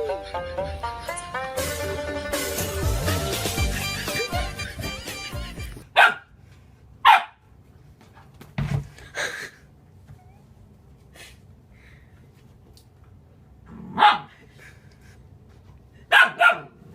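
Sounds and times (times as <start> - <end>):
dog barking: 6.0 - 6.3, 7.0 - 7.4, 13.9 - 14.3, 16.1 - 16.8.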